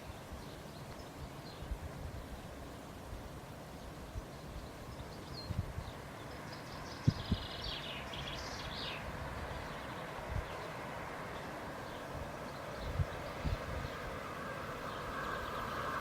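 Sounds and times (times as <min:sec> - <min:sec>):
birds chirping: 0:03.8 - 0:16.0.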